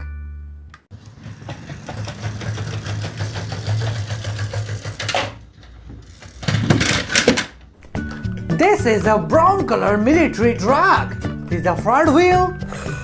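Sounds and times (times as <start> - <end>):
toy truck wheels rattling on track: 0.9 - 7.7.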